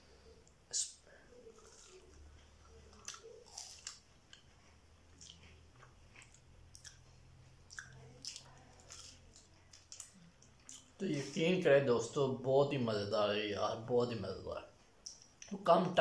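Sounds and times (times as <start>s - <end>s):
crunchy biting and chewing: 1.4s - 11.0s.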